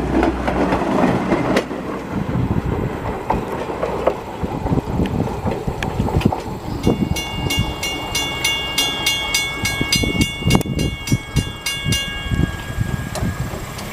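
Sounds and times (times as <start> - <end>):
low rumble of train: 0.0 - 13.9
bell ringing in quick strokes: 6.8 - 13.5.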